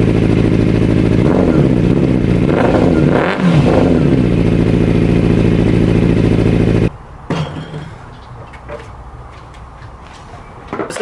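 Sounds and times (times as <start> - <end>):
motorcycle engine revving and idling: 0.0 - 6.9.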